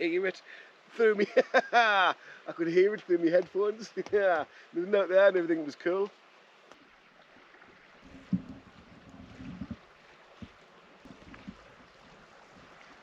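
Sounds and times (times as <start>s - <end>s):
faint steady hiss: 0.0s - 13.0s
wind buffeting microphone: 8.0s - 13.0s.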